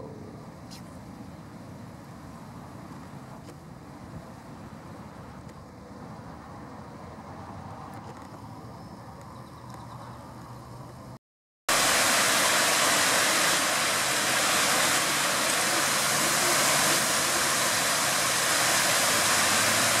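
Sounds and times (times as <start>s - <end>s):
rush of falling water: 11.7s - 20.0s.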